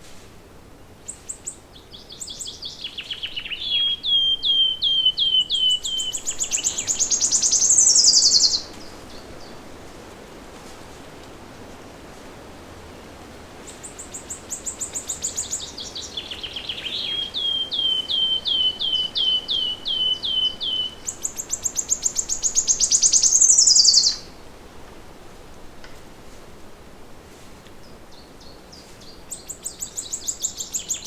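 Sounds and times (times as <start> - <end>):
faint forest background hiss: 0.0 - 31.0
songbird singing: 0.8 - 9.8, 13.6 - 24.5, 27.7 - 31.0.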